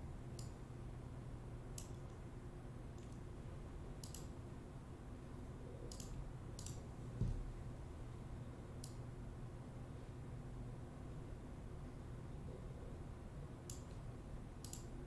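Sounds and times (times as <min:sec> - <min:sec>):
low room hum: 0:00.0 - 0:15.0
computer mouse clicking: 0:00.4 - 0:00.6, 0:03.0 - 0:03.2, 0:04.0 - 0:04.3, 0:05.9 - 0:06.8, 0:13.7 - 0:14.0, 0:14.6 - 0:15.0.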